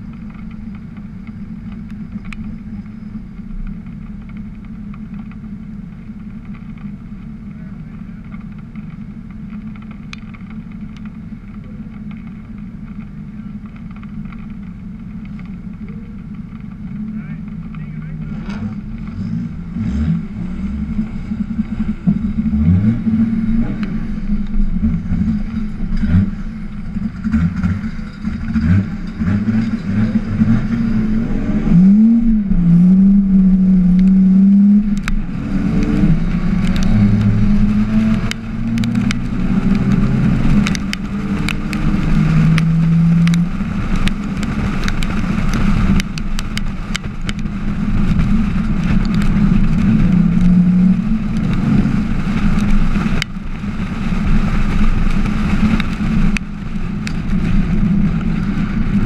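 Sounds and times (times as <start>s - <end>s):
car engine idling and revving: 0.0s - 59.0s
sharp clicks: 34.8s - 47.5s.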